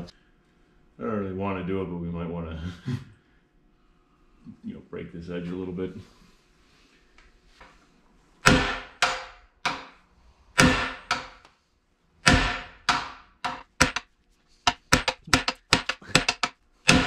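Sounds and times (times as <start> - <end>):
hammer striking metal driver: 8.4 - 10.0, 10.6 - 11.4, 12.2 - 14.1, 14.7 - 17.0.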